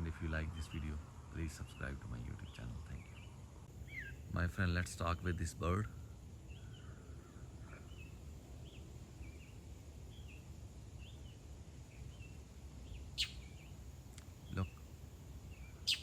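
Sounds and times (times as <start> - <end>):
faint low background rumble: 0.0 - 16.0
small bird chirping: 0.0 - 16.0.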